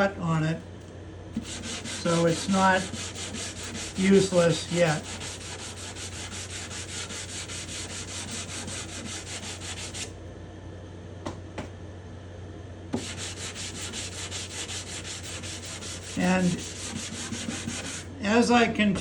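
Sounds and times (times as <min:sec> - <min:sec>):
sandpaper rubbing on wood: 0:01.4 - 0:10.1, 0:13.0 - 0:18.1.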